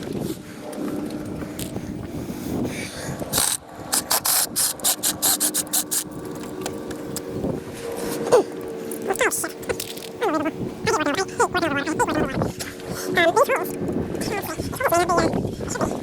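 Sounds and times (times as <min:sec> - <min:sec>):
sharp ratcheting clicks: 0:03.3 - 0:06.1
mechanical hum of screw driver: 0:03.3 - 0:06.2.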